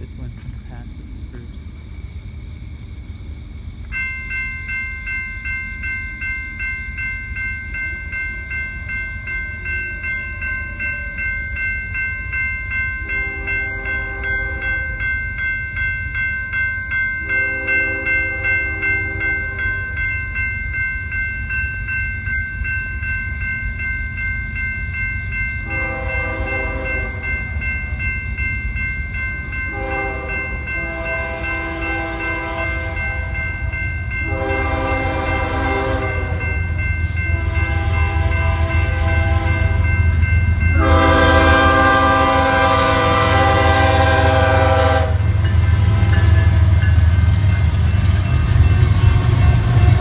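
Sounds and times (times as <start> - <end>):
train rumbling: 0.0 - 50.0
crossing bell ringing: 3.7 - 50.0
train horn blasts: 13.0 - 15.0, 17.2 - 20.0, 25.6 - 27.5, 29.7 - 33.5, 34.2 - 40.1, 40.7 - 46.9.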